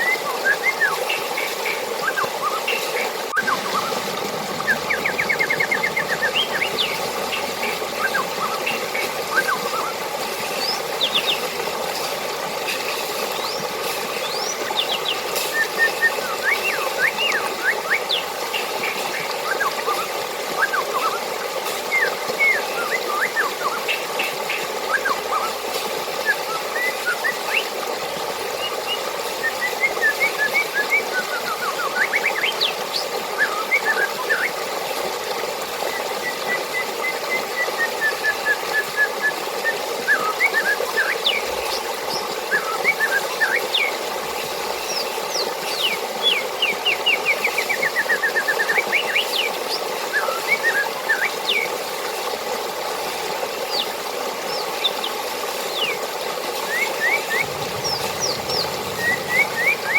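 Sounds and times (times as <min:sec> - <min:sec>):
birds chirping and trilling: 0:00.0 - 0:12.2, 0:13.0 - 0:21.2, 0:28.4 - 0:34.6, 0:40.1 - 0:51.8, 0:53.5 - 0:59.9
running water rushing: 0:00.0 - 0:59.9.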